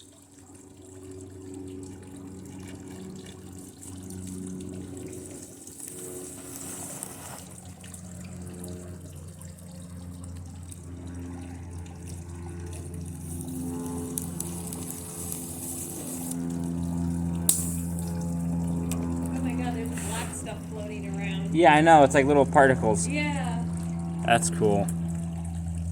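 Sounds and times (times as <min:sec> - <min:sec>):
low electrical buzz: 0:00.0 - 0:25.9
circuit board crackling sizzle: 0:12.6 - 0:20.1.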